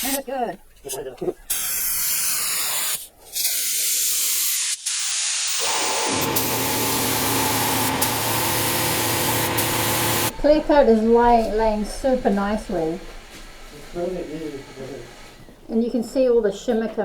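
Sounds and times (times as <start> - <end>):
spray gun hissing: 1.5 - 15.7
low machine hum: 5.6 - 16.7.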